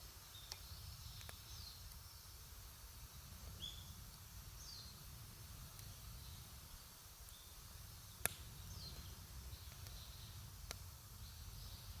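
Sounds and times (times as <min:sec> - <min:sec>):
campfire crackling: 0:02.6 - 0:12.0.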